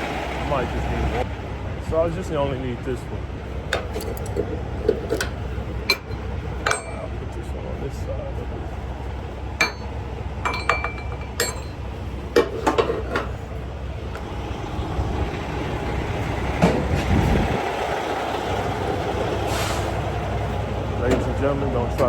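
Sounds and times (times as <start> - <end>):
metal hook clinking: 3.7 - 7.1, 9.6 - 11.9
low rumble: 13.5 - 19.4.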